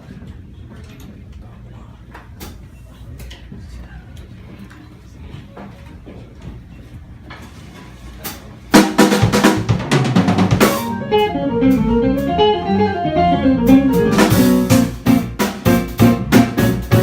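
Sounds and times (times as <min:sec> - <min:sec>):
drum hits: 0:08.8 - 0:17.0
jazz band playing: 0:08.8 - 0:17.0.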